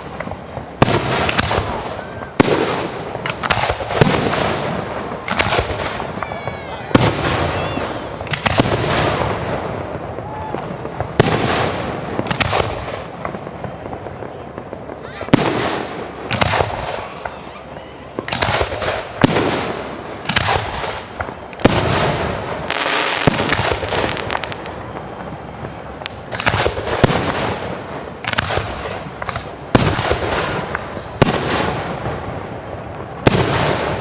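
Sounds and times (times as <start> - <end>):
fireworks crackling: 0.0 - 34.0
fireworks shells bursting: 18.2 - 32.0.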